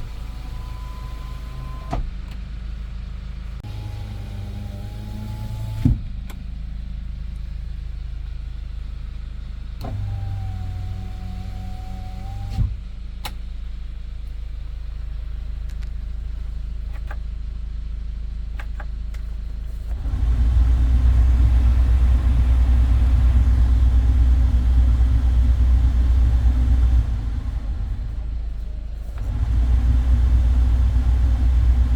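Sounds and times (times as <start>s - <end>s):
power window motor whine: 0.0s - 2.1s, 9.8s - 12.8s, 19.9s - 28.2s, 29.2s - 31.9s
truck engine idling: 0.0s - 5.0s, 6.2s - 11.4s, 12.8s - 31.9s.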